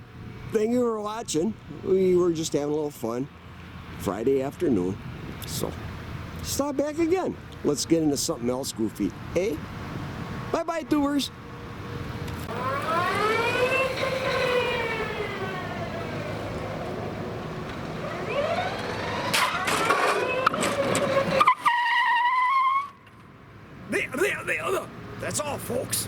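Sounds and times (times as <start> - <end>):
electric motor whining: 17.8 - 21.3.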